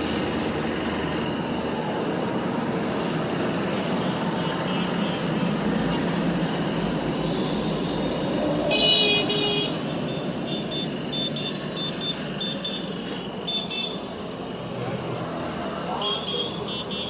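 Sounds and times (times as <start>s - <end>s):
street traffic noise: 0.0s - 17.0s
vehicle horn honking: 16.0s - 17.0s.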